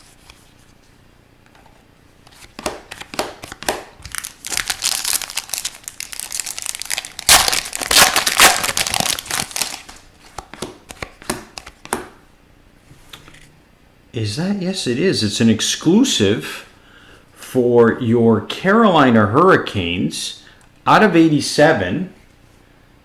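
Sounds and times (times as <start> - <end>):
wrapper crinkling and tearing: 2.9 - 10.1.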